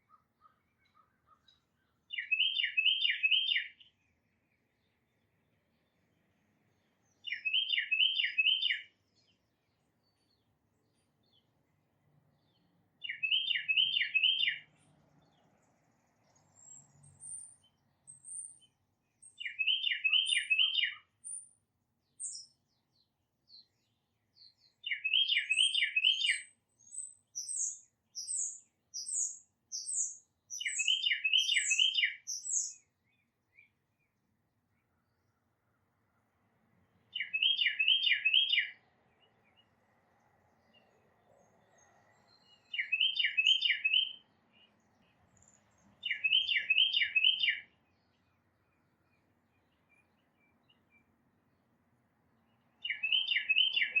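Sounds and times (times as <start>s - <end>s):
bird whistling down-slurred notes: 2.2s - 3.7s, 27.4s - 32.8s, 42.7s - 44.2s, 52.8s - 54.0s
thin high bird calls: 24.8s - 32.8s, 52.8s - 54.0s.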